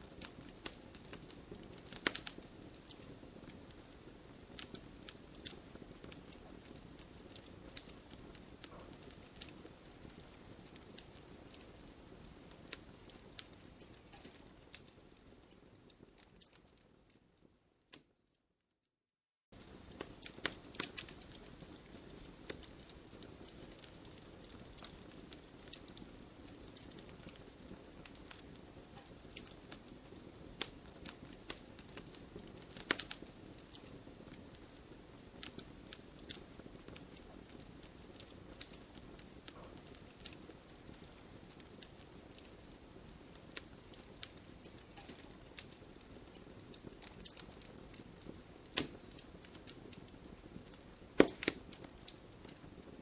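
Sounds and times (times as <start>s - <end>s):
burning wood crackling and popping: 0.0s - 18.2s, 19.5s - 53.0s
flames rushing: 29.2s - 52.9s.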